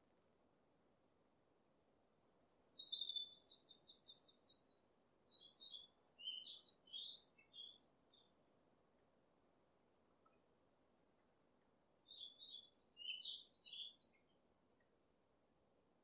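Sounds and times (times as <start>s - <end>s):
faint background hiss: 0.0s - 16.0s
songbird singing: 2.2s - 9.0s, 12.0s - 14.9s.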